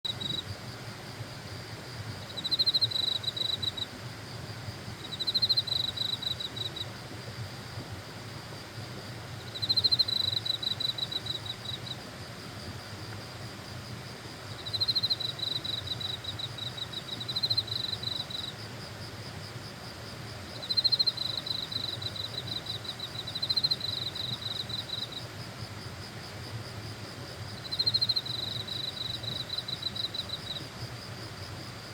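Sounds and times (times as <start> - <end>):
insect pulsing trill: 0.1 - 0.7, 1.9 - 4.0, 4.6 - 8.2, 9.3 - 12.1, 14.5 - 19.0, 20.4 - 25.3, 27.5 - 31.9
insects humming: 0.1 - 31.9.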